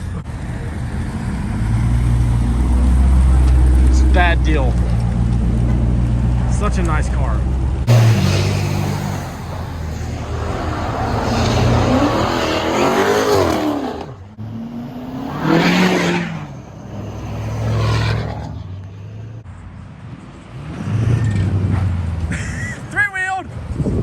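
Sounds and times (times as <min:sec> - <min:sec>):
low engine drone: 0:00.0 - 0:15.6
car engine revving: 0:00.0 - 0:19.4.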